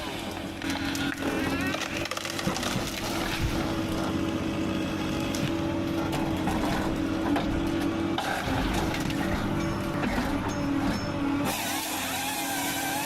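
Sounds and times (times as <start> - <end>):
harvester engine humming: 0.0 - 13.0.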